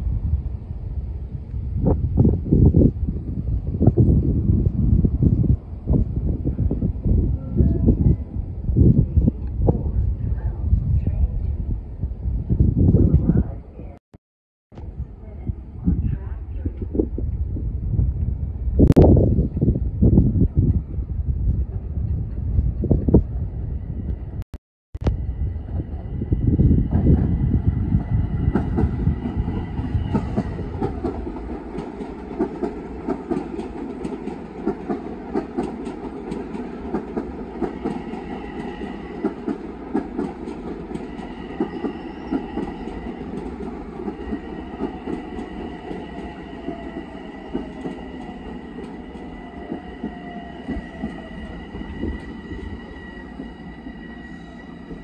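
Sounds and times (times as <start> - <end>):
train high whine: 25.0 - 55.0.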